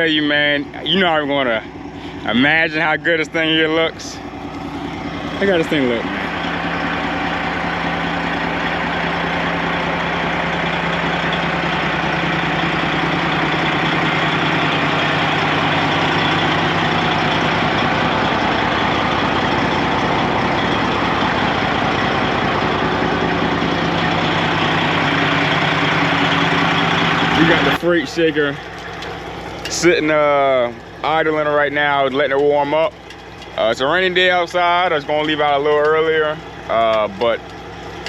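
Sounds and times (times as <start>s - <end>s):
diesel truck engine idling: 0.0s - 38.0s.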